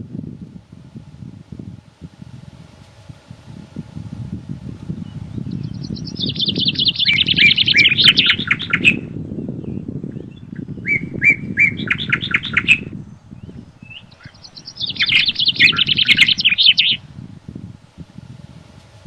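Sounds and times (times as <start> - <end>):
wind rushing in forest: 0.0 - 19.0
songbird singing: 4.8 - 17.4.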